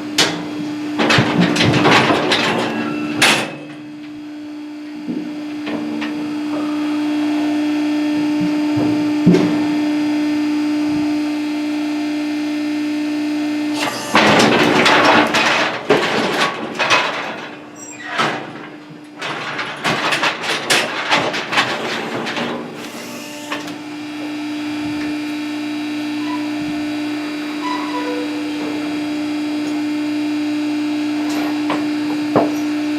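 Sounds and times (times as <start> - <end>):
machine hum: 0.0 - 32.9
metallic clanging and rattling: 14.1 - 22.8.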